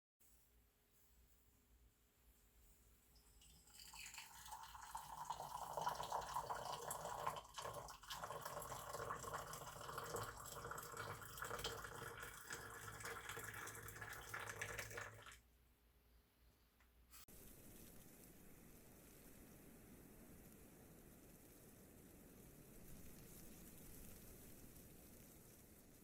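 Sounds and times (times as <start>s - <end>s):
liquid pouring into a cup: 3.2s - 15.4s.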